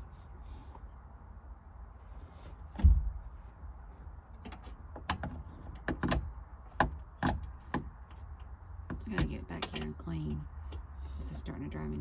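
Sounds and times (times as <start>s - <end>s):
heavy thump: 2.8s - 3.2s
knocks and clicks of tools: 4.4s - 10.1s.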